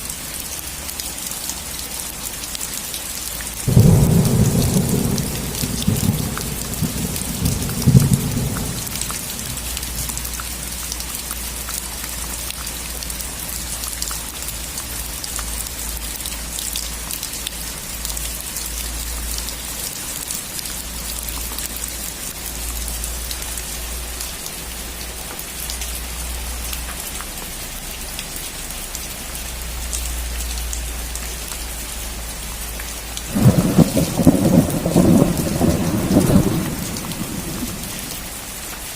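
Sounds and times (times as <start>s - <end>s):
rain falling on a roof: 0.0s - 38.9s
thunder rumbling: 3.7s - 10.0s, 33.3s - 38.4s.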